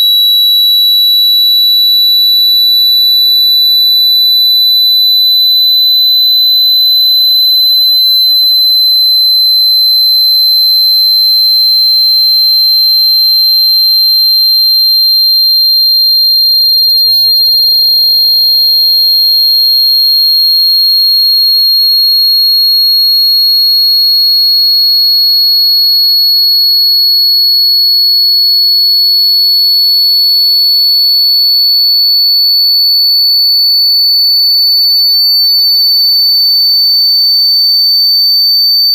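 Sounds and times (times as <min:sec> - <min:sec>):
high-pitched rising sine tone: 0:03.9 - 0:24.0.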